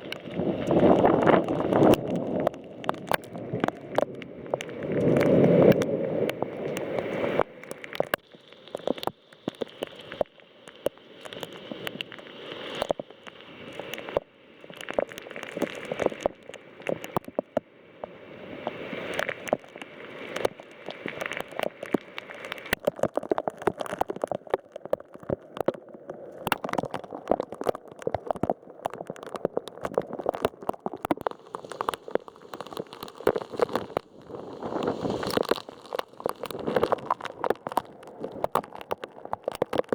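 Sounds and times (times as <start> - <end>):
heavy rain tapping hard surface: 0.0 - 10.8, 26.4 - 39.9.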